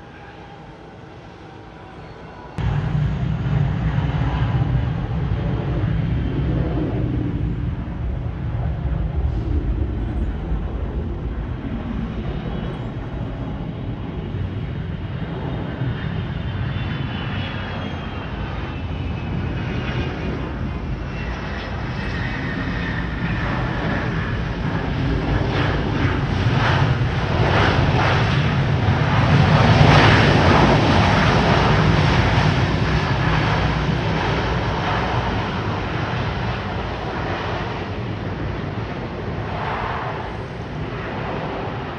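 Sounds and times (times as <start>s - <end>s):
jet passing with engine rumble: 0.0s - 41.9s.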